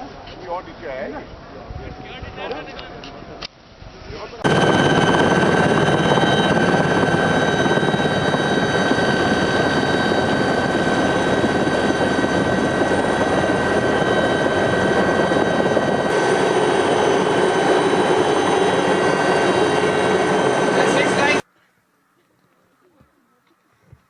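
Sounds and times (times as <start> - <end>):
loud engine running: 4.4 - 21.4
high whine: 4.4 - 21.5.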